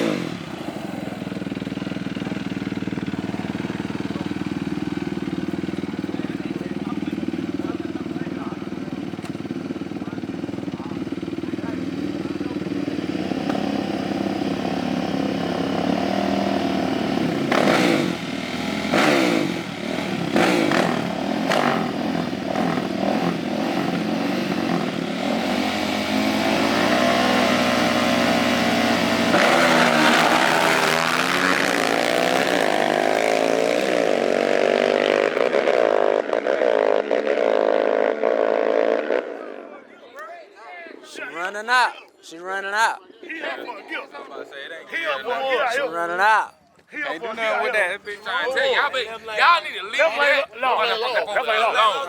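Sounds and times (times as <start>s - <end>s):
small engines revving: 0.0s - 39.6s.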